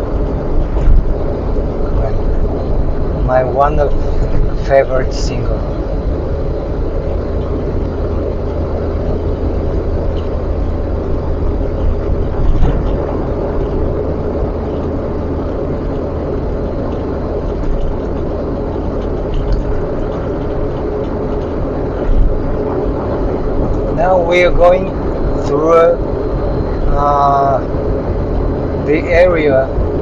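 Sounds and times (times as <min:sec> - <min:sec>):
car road and engine rumble: 0:00.0 - 0:30.0
car bumps: 0:11.8 - 0:14.0.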